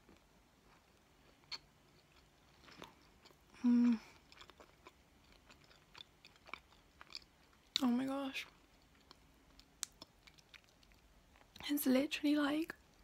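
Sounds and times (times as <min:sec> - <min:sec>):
person chewing with mouth closed: 0:00.0 - 0:07.9, 0:08.5 - 0:11.6
woman humming mm: 0:03.6 - 0:04.2.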